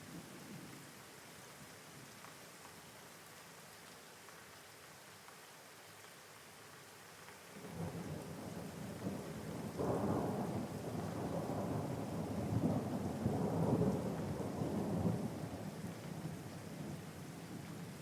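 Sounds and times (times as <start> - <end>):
steady rain: 0.0 - 18.0
rolling thunder: 7.6 - 16.4.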